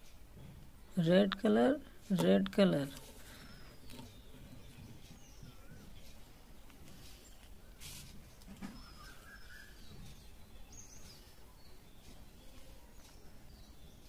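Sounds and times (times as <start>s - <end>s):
faint birds chirping: 0.0s - 14.0s
thin wavering whistles: 8.7s - 9.9s.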